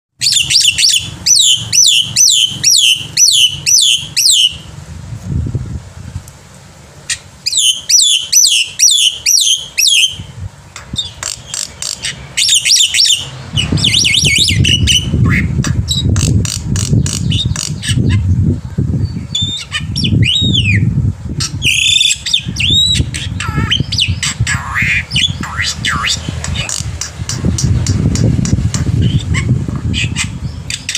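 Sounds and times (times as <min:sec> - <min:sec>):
low rumbling noise: 0:00.2 - 0:30.9
myna calling: 0:07.0 - 0:18.4, 0:19.3 - 0:28.0.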